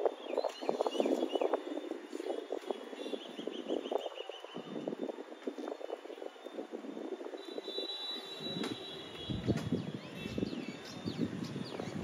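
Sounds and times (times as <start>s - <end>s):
small birds chirping: 0.2s - 4.7s, 9.2s - 12.0s.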